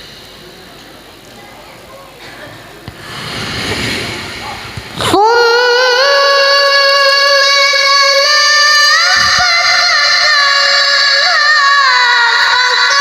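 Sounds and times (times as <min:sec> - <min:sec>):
child reciting melodically: 0:05.1 - 0:13.0.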